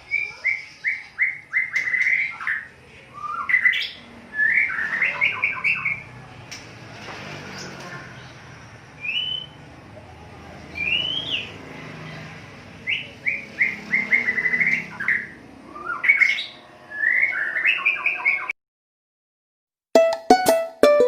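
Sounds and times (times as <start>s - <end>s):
songbird whistling and chirping: 0.0s - 6.0s, 9.0s - 9.6s, 10.7s - 11.5s, 12.8s - 18.5s.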